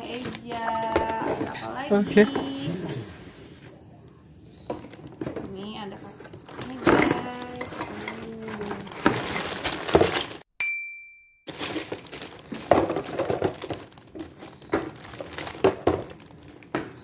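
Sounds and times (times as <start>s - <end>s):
packaging crinkling: 0.0s - 2.5s, 4.5s - 10.5s, 11.5s - 17.0s
plastic toy parts handled: 6.1s - 10.4s
short high ding: 10.6s - 11.5s.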